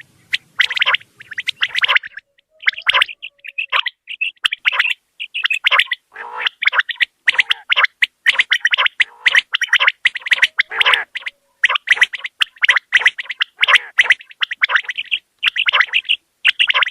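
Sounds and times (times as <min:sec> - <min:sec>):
quail calling: 0:00.0 - 0:16.9.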